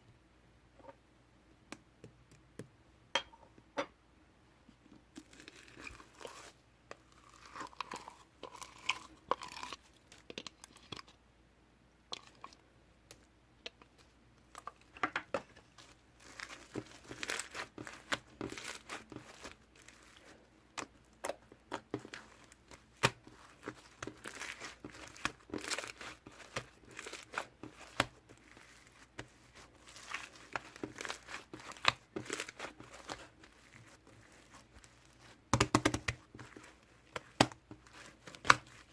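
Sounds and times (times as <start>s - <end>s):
slime squished by hand: 15.8s - 38.9s.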